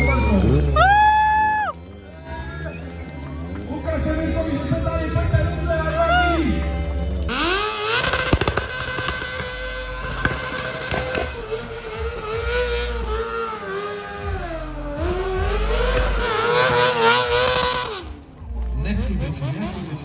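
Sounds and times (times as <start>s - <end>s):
car engine at high revs: 7.1s - 18.5s
sharp cracks: 7.4s - 11.4s.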